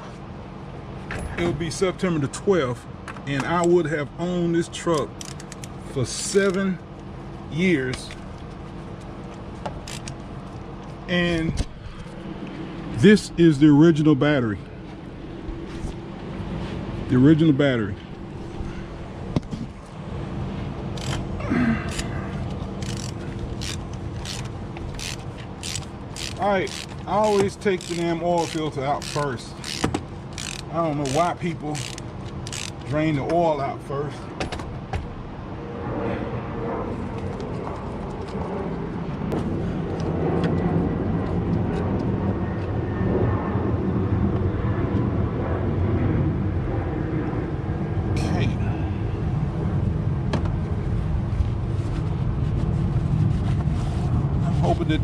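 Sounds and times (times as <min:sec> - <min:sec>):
low engine rumble: 0:00.0 - 0:55.0
hand ratchet clicking: 0:05.2 - 0:05.7, 0:09.8 - 0:10.2, 0:21.0 - 0:21.2, 0:22.8 - 0:32.9.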